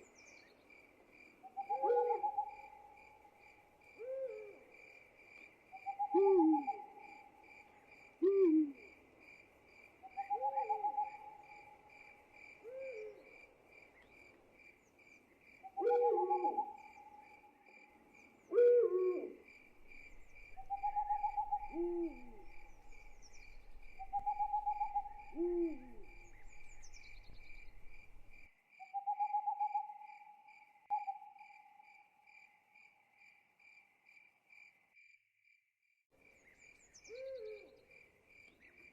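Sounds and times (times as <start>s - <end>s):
crickets chirping: 0.0s - 35.2s
owl trilling calls: 1.5s - 2.9s, 5.8s - 7.2s, 10.1s - 11.8s, 15.7s - 17.1s, 18.5s - 30.1s
owls hooting: 1.6s - 2.7s, 5.8s - 7.1s, 15.8s - 16.9s, 18.5s - 28.0s.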